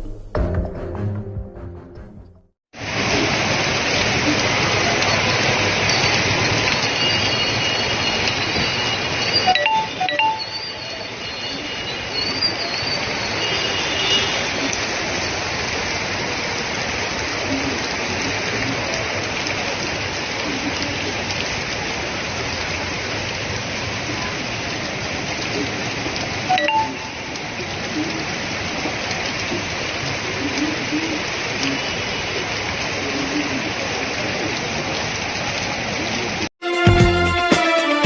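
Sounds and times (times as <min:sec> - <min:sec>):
heavy rain hissing: 0:02.8 - 0:09.5.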